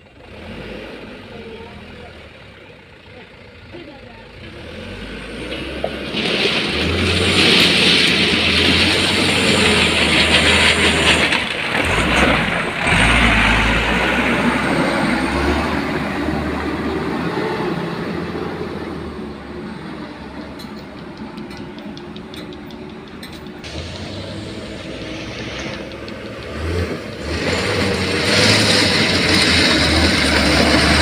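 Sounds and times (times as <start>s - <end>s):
diesel truck engine running hard: 0.0s - 31.0s
loud hiss: 23.7s - 26.0s.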